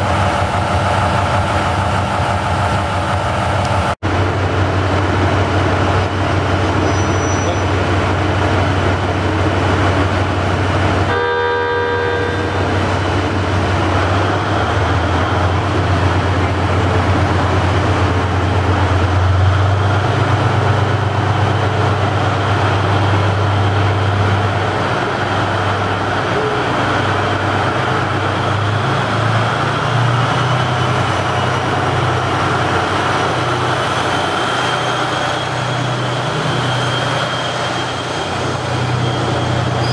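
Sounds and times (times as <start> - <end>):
train engine rumble: 0.0 - 39.9
train horn blast: 11.1 - 12.8.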